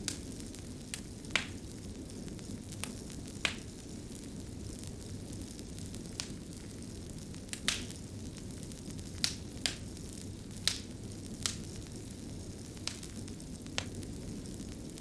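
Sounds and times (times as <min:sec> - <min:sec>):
fire crackling: 0:00.0 - 0:15.0.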